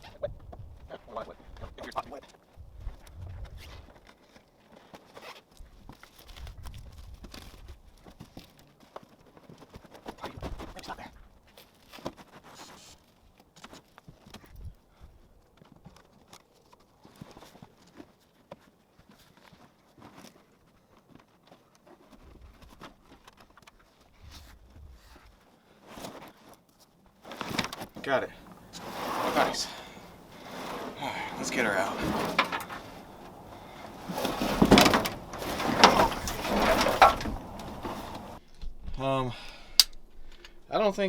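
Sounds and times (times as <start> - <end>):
faint knocks clicks and rustling: 27.3 - 38.4.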